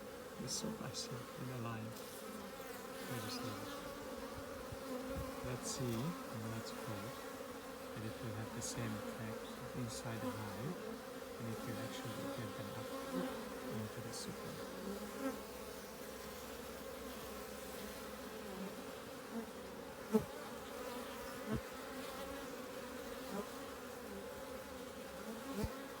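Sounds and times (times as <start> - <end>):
bee flying past: 0.0 - 26.0
bees buzzing: 0.0 - 26.0.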